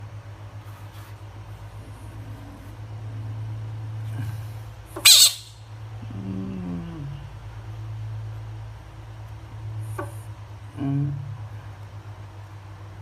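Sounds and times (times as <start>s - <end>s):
low pulsing drone: 1.7s - 4.6s, 5.9s - 8.4s
frog calling: 5.0s - 5.6s.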